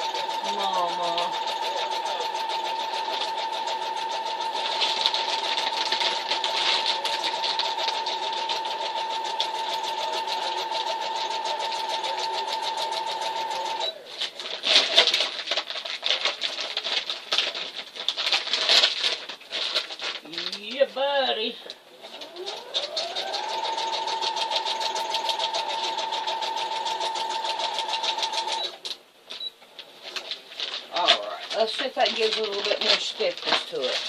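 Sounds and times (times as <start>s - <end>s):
electric sewing machine running: 0.0s - 13.9s, 22.0s - 28.8s
handling noises: 28.7s - 34.0s.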